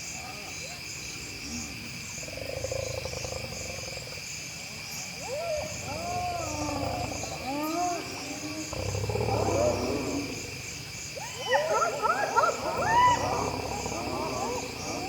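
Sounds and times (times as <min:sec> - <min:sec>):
crickets chirping: 0:00.0 - 0:15.0
hyenas yelping and whooping: 0:05.2 - 0:10.3, 0:11.2 - 0:15.0
hyena buzzing growl: 0:05.8 - 0:10.8, 0:12.7 - 0:15.0.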